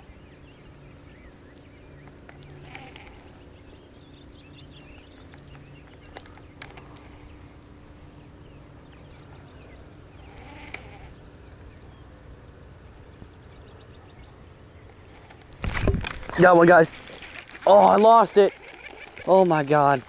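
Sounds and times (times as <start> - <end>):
low steady hum: 0.0 - 19.2
sharp clicks: 4.9 - 7.0.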